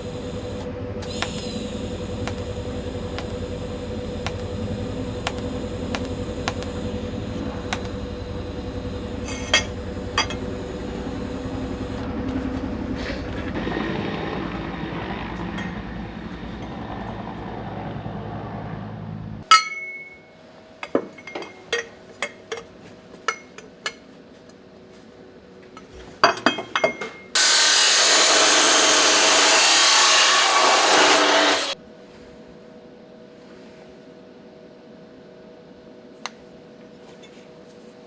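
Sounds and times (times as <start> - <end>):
power tool working metal: 0.0 - 13.6, 27.4 - 31.8.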